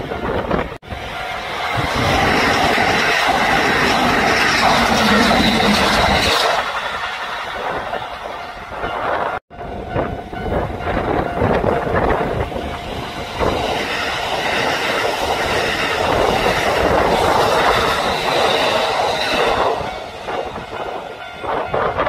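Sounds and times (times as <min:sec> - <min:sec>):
high steady ringing tone: 0:00.9 - 0:22.0.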